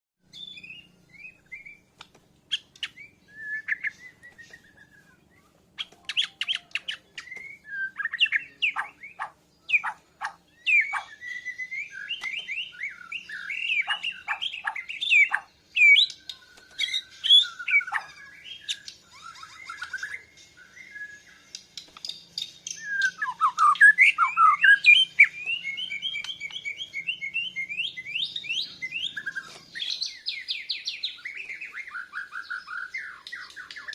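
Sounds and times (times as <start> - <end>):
bird singing varied song: 0.2 - 33.9.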